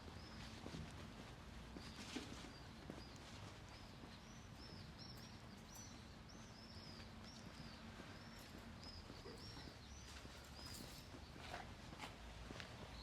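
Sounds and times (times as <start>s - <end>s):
small birds chirping: 1.8s - 11.6s.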